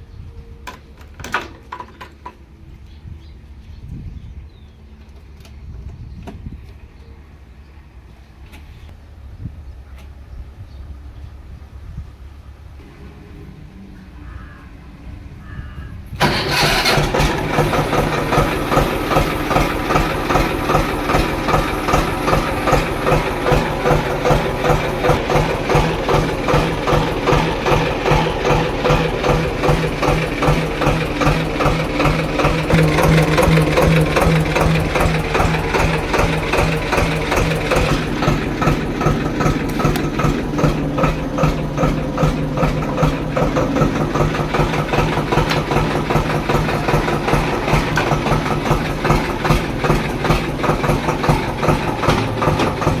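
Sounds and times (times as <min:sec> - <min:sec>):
diesel tractor engine idling: 0:01.8 - 0:53.0.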